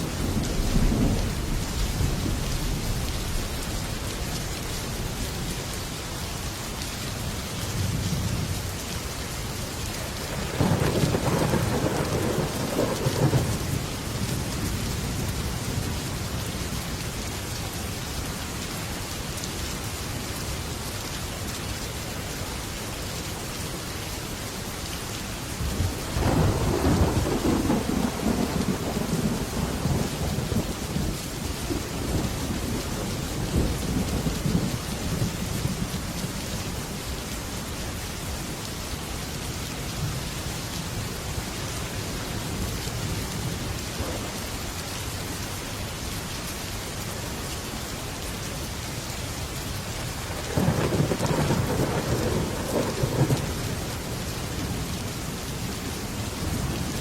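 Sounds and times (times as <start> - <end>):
thunder rumbling: 0.0 - 4.1, 10.3 - 15.8, 25.6 - 36.2, 42.5 - 44.4, 50.2 - 54.8
heavy rain on a metal roof: 0.0 - 57.0.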